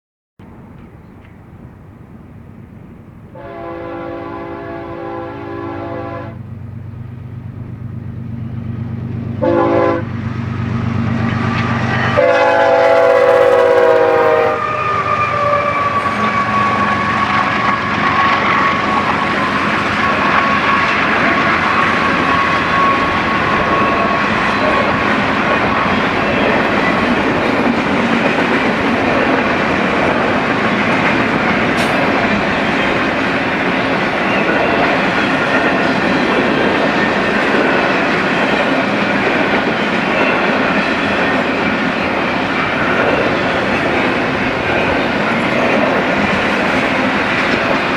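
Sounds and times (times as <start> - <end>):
train cars rolling and clattering: 0.4 - 4.0, 6.5 - 47.9
locomotive engine hum: 0.4 - 47.9
locomotive air horn: 3.3 - 6.4, 9.4 - 10.2, 12.1 - 19.4.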